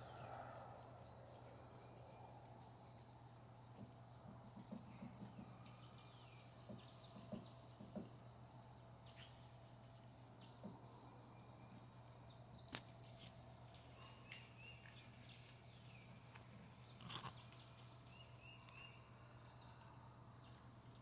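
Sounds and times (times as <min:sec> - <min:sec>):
faint bird chirps: 0:04.6 - 0:21.0.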